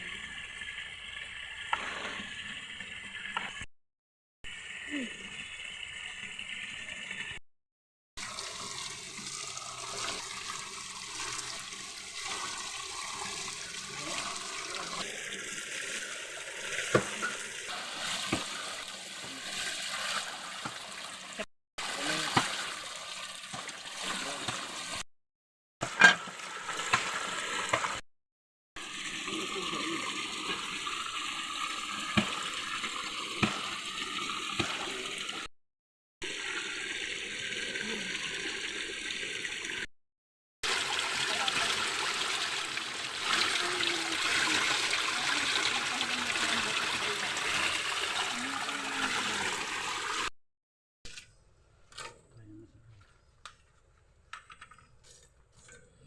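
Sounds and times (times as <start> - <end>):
flowing water rushing: 8.2 - 25.0, 28.8 - 35.5, 40.6 - 50.3.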